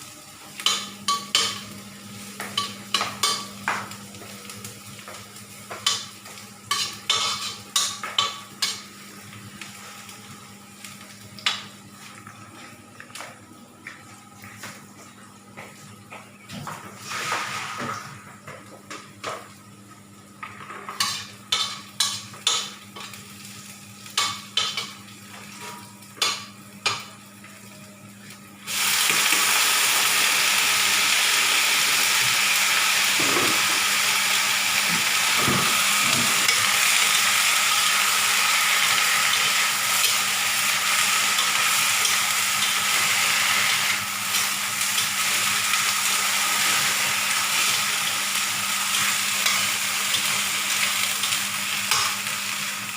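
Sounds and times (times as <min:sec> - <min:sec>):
food sizzling in hot oil: 0:00.2 - 0:10.2, 0:17.0 - 0:17.9, 0:28.6 - 0:52.9
utensils clinking on cookware: 0:00.6 - 0:01.7, 0:02.4 - 0:03.8, 0:05.7 - 0:08.9, 0:20.5 - 0:23.2, 0:24.1 - 0:27.1.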